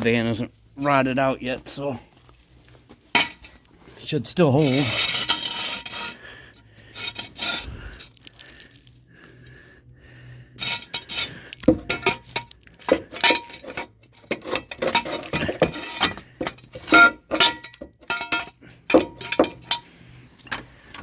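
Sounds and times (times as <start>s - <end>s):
steel jack stand clanking: 10.6s - 21.0s.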